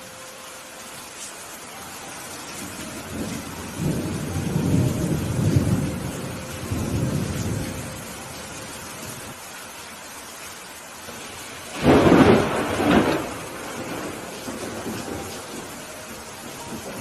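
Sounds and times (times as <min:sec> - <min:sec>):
steady rain hiss: 0:00.0 - 0:17.0
thunder rolling: 0:02.6 - 0:09.3, 0:11.2 - 0:17.0.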